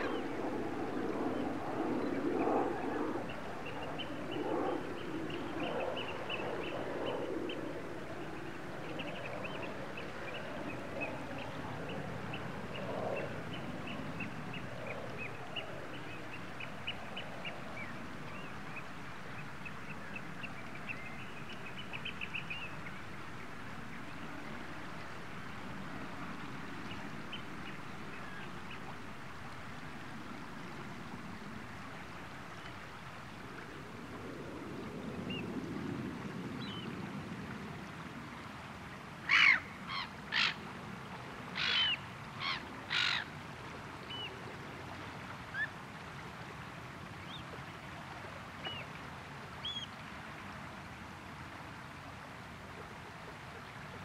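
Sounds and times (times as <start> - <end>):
steady background hiss: 0.0 - 54.0
birds calling: 41.6 - 43.3.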